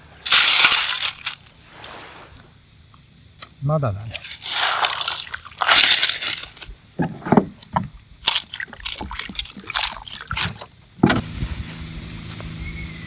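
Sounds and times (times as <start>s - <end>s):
water splashing in a container: 4.2s - 6.6s, 7.7s - 10.8s
container knocks and scrapes: 4.2s - 11.3s.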